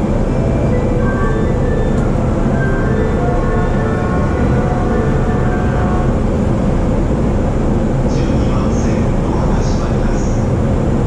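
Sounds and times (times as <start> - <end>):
faint high tones: 0.0 - 6.5
train wheels rumbling on rails: 0.0 - 11.0.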